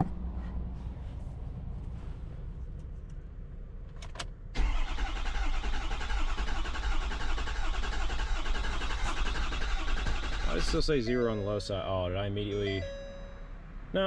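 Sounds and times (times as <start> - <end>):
diesel engine cranking: 3.8 - 11.6.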